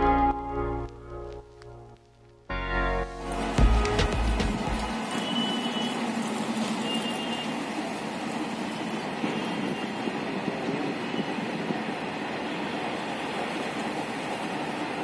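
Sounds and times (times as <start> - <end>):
train wheels rumbling on rails: 3.2 - 15.0.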